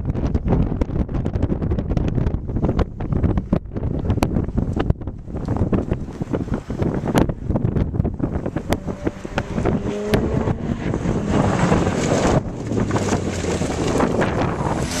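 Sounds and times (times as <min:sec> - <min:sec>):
wind buffeting microphone: 0:00.0 - 0:15.0
racing car engines accelerating: 0:08.3 - 0:15.0.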